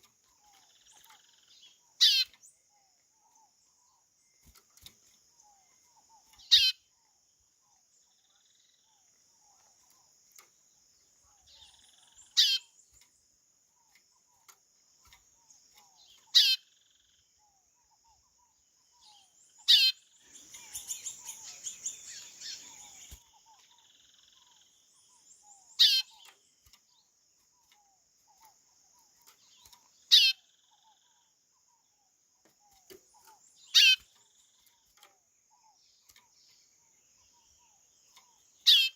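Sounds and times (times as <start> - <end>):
bird rapid chattering: 19.7 - 24.6
faint steady high hiss: 20.1 - 23.3.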